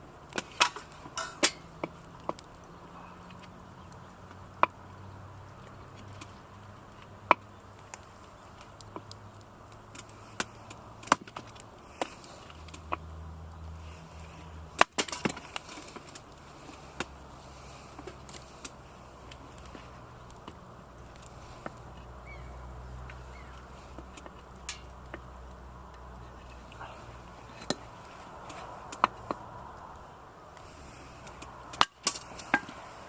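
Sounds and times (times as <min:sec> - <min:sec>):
campfire crackling and snapping: 0:00.0 - 0:33.0.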